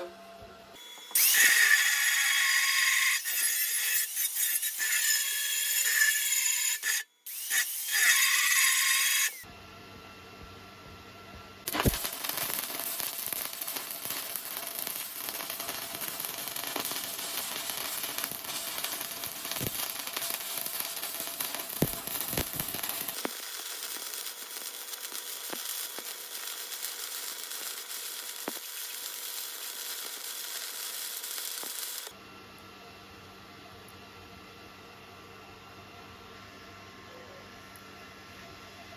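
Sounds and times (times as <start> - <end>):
welding arc crackling sizzle: 1.2 - 9.5, 11.6 - 32.2
sharp welding pops: 11.7 - 32.1.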